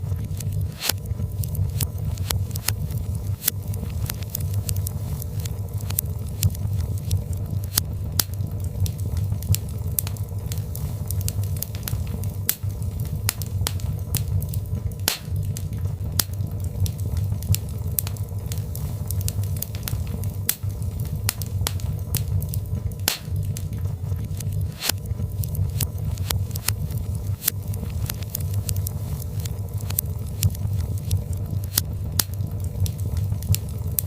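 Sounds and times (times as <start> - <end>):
log fire crackling: 0.0 - 34.0
low rumble of flames: 0.0 - 34.0
sharp pops and snaps: 0.0 - 34.0.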